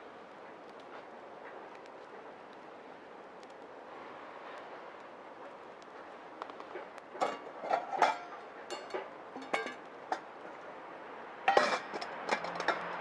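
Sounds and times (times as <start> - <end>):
steady hiss: 0.0 - 11.5
hard items clinking and knocking: 7.2 - 10.2, 11.5 - 13.0.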